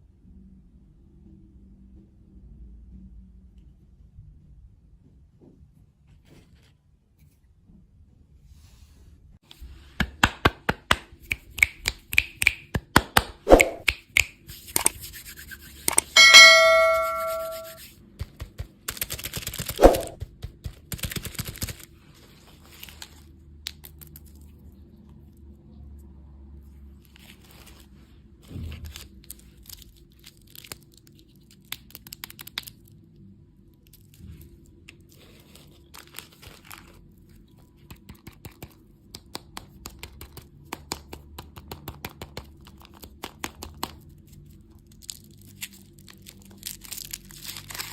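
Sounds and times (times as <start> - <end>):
ringing ding: 16.2 - 17.8
wrapper crinkling and tearing: 28.7 - 33.0, 35.0 - 37.5, 43.9 - 47.9.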